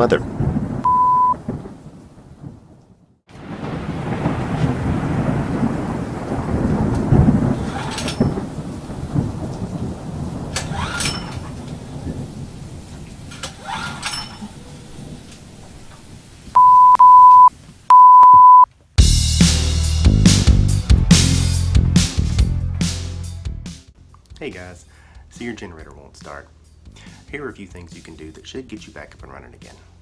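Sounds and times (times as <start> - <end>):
sharp thunder cracks: 0.0 - 2.7, 3.3 - 13.4
rolling thunder: 0.0 - 13.4
rain: 0.0 - 16.6, 17.5 - 17.9
electronic beeps: 0.8 - 1.4, 16.6 - 18.7
music: 19.0 - 30.0.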